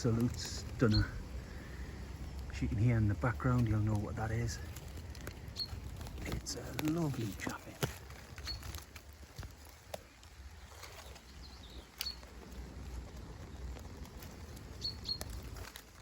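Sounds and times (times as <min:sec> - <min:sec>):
chaffinch calls: 0:00.0 - 0:04.6, 0:05.4 - 0:08.9, 0:10.8 - 0:12.4, 0:14.7 - 0:15.5
faint clicks and rustles: 0:00.0 - 0:16.0.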